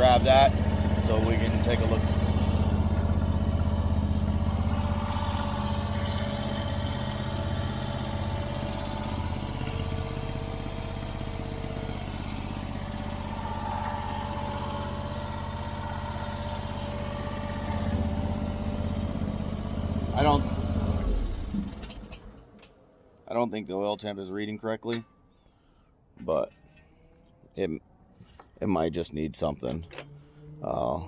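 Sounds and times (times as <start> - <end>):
small engine idling: 0.0 - 23.2.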